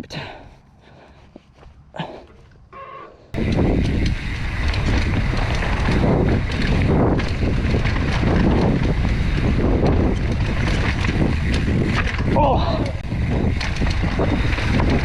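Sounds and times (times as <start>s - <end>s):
tyre rumble: 1.4s - 15.0s
bike rattling over bumps: 2.4s - 15.0s
wind buffeting microphone: 3.3s - 15.0s.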